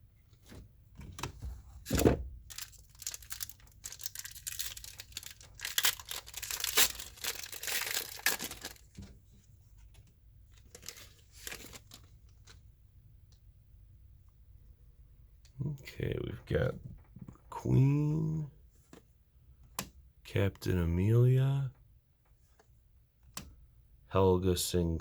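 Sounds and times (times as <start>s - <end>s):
thump: 1.4s - 2.4s
foil wrapper tearing and crinkling: 2.5s - 8.9s, 10.7s - 12.1s.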